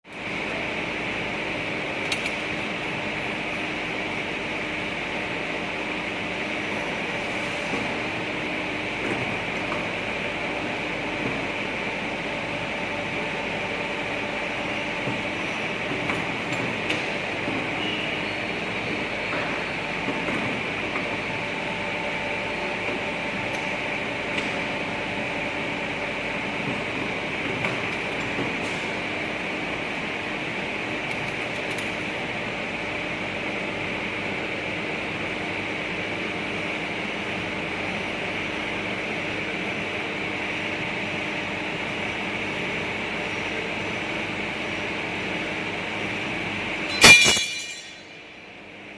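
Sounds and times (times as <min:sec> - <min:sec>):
machine hum and hiss: 0:00.1 - 0:48.9
pipe bending machine humming: 0:41.4 - 0:48.9.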